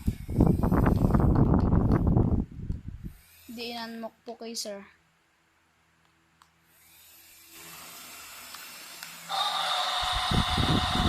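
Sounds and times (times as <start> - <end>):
toy electric motors whining: 0.0 - 2.0, 3.1 - 4.0, 6.6 - 11.0.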